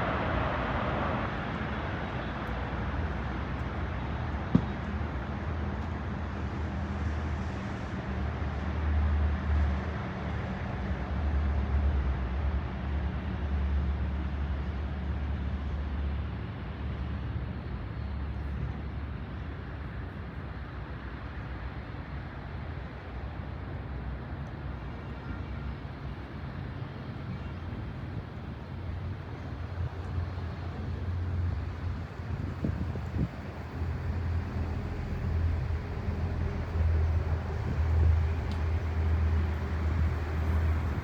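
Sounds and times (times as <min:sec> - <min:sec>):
jet engines rumbling: 0:25.8 - 0:41.0.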